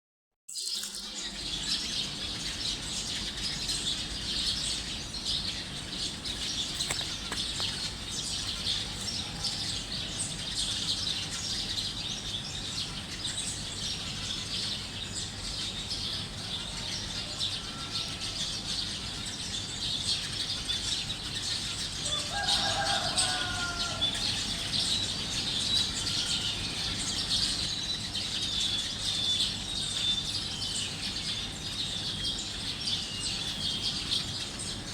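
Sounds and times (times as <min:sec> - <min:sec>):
small birds chirping: 0:00.5 - 0:34.9
chicken calling: 0:22.0 - 0:27.0.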